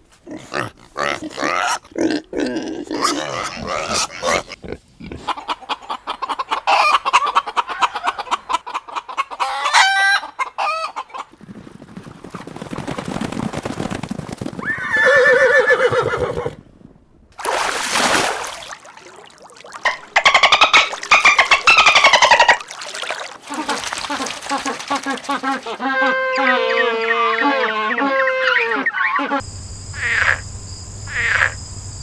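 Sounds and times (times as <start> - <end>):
chickens clucking: 5.1 - 11.3, 19.8 - 22.7.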